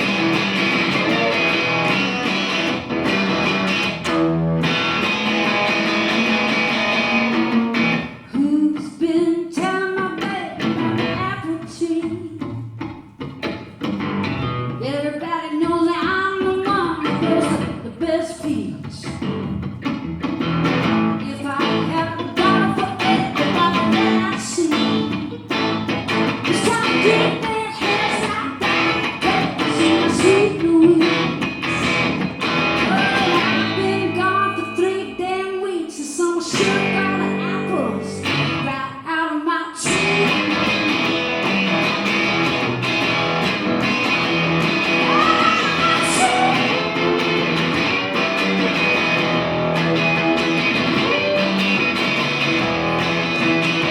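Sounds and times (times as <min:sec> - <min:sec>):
live rock band: 0:00.0 - 0:08.8, 0:09.6 - 0:39.0, 0:39.8 - 0:53.9
strummed guitars: 0:00.0 - 0:53.9
woman singing: 0:08.1 - 0:12.8, 0:14.7 - 0:19.4, 0:21.1 - 0:25.5, 0:26.4 - 0:31.5, 0:32.8 - 0:41.0, 0:44.8 - 0:47.3.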